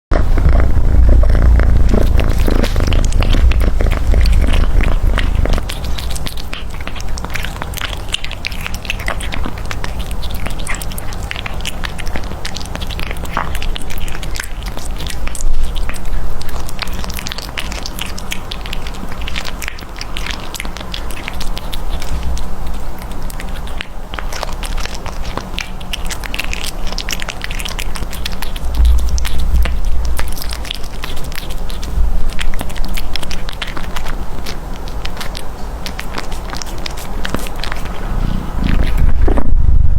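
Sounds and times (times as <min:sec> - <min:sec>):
low rumble: 0:00.1 - 0:07.0, 0:28.6 - 0:32.7, 0:37.3 - 0:39.9
cat chewing and licking: 0:00.1 - 0:39.9.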